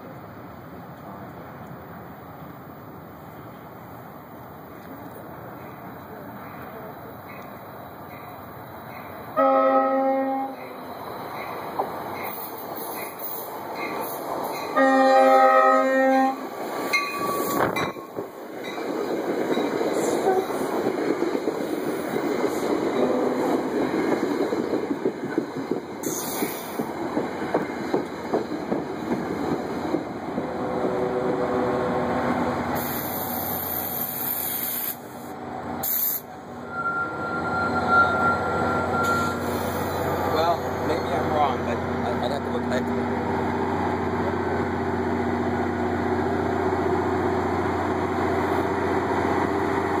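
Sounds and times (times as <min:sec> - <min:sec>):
train wheels rumbling on rail: 0:00.0 - 0:50.0
train horn blast: 0:09.4 - 0:10.7, 0:14.7 - 0:16.5, 0:23.0 - 0:23.5, 0:30.4 - 0:32.1.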